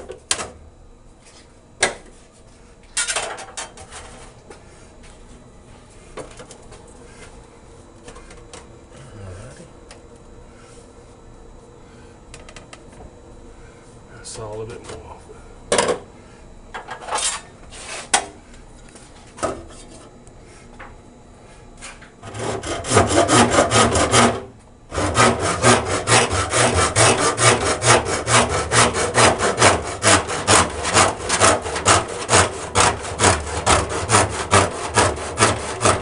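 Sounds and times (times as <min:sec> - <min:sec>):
hand saw cutting plastic pipe: 0:22.2 - 0:36.0.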